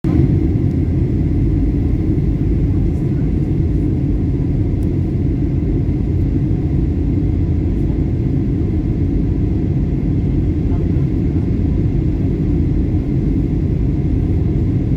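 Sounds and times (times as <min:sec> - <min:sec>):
engine and airflow rumble: 0:00.0 - 0:14.9.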